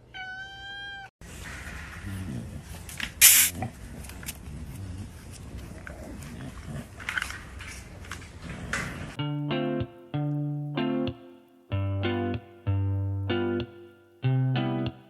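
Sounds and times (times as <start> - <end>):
sharp noisy burst: 3.2 - 3.6.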